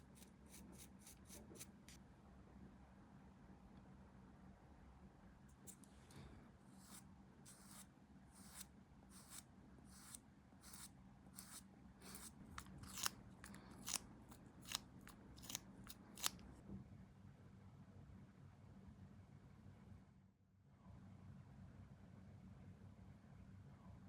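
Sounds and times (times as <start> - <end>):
hand cutting tool snipping: 12.1 - 14.0, 14.6 - 16.4.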